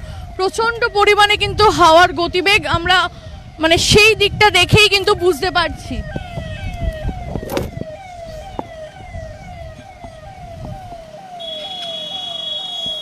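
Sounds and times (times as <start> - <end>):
wind rumble on microphone: 0.0 - 11.2
electronic siren falling tone: 3.4 - 13.0.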